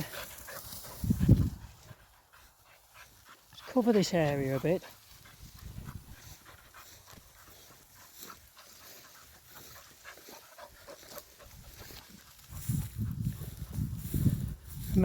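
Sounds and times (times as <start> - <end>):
dog panting: 0.0 - 14.1.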